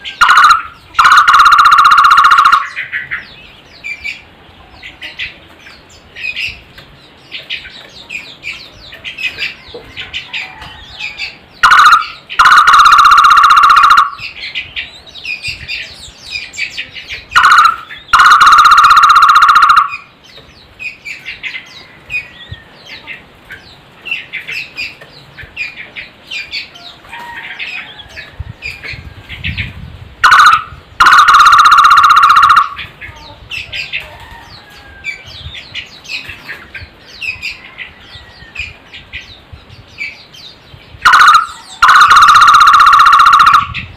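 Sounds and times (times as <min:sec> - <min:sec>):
bird trilled calls: 0:00.0 - 0:10.3, 0:10.9 - 0:26.9, 0:30.2 - 0:33.9, 0:40.0 - 0:43.9
small birds chirping: 0:00.0 - 0:43.9.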